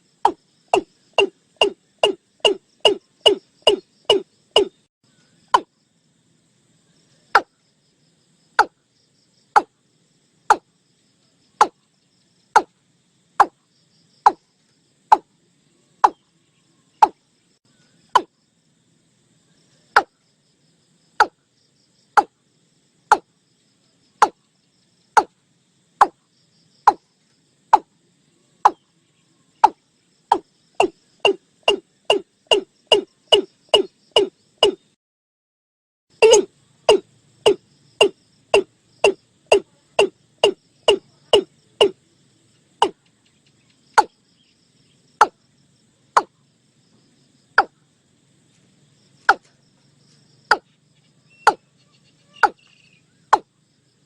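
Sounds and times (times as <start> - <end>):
bird calling hollow notes: 0.2 - 4.9, 16.0 - 16.2, 18.1 - 18.3, 29.6 - 34.9, 36.2 - 42.0, 51.3 - 51.6, 52.3 - 53.5.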